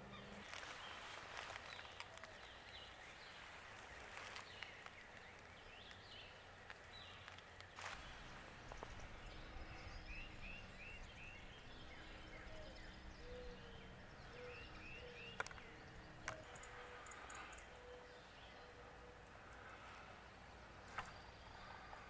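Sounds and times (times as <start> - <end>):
low hooting notes: 7.8 - 20.8.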